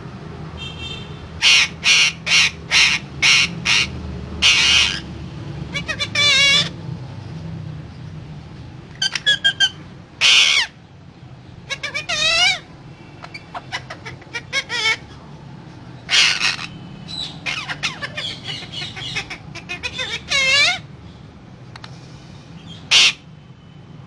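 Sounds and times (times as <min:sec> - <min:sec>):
parrot harsh squawks: 0:01.4 - 0:05.1, 0:05.7 - 0:06.8, 0:09.0 - 0:10.8, 0:11.7 - 0:15.2, 0:16.1 - 0:20.9, 0:22.7 - 0:23.3
parrot warbling calls: 0:01.4 - 0:05.1, 0:05.7 - 0:06.8, 0:09.0 - 0:10.8, 0:11.6 - 0:15.2, 0:16.0 - 0:20.9, 0:22.7 - 0:23.2.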